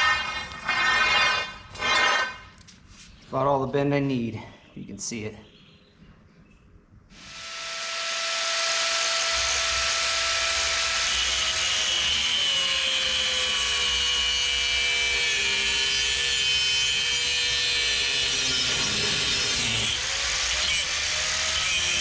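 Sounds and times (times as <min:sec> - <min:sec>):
power tool cutting steel: 0:07.1 - 0:22.0.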